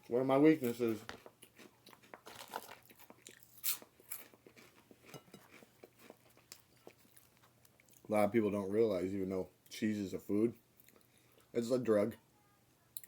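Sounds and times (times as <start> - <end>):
person chewing food: 0.9 - 8.1, 10.8 - 11.5.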